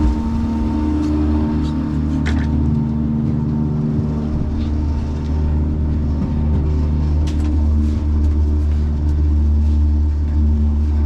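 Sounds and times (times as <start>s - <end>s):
outboard motor humming: 0.0s - 11.0s.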